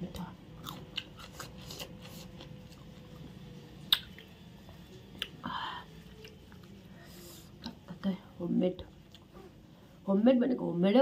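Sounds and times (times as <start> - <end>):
person chewing food: 0.6 - 4.3, 5.1 - 5.4, 6.0 - 7.8, 9.0 - 9.3.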